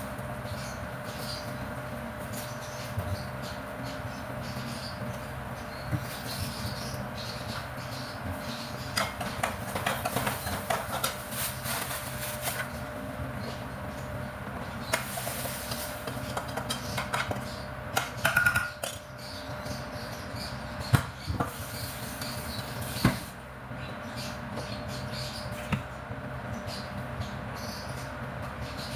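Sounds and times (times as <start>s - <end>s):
steady low hum: 0.0s - 28.9s
dishes and utensils clinking: 18.0s - 19.0s.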